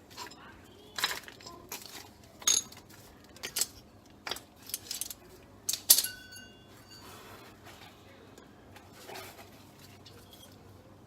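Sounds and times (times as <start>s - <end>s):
small metal objects clinking: 0.1s - 7.1s.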